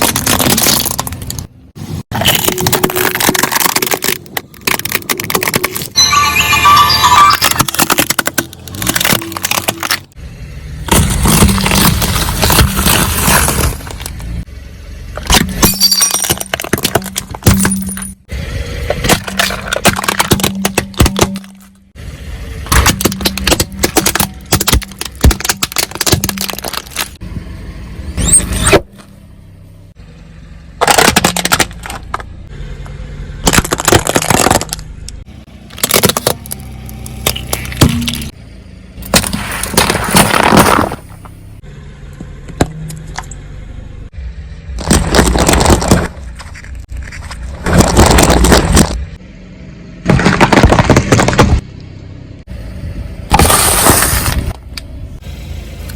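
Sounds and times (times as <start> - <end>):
tyre crunching brittle objects: 0.0 - 1.5, 2.1 - 6.0, 6.6 - 10.2, 10.9 - 14.4, 18.9 - 21.8, 22.6 - 27.2, 30.8 - 32.3, 33.4 - 38.4, 39.0 - 41.4, 44.7 - 49.1, 50.1 - 51.6, 53.3 - 54.6.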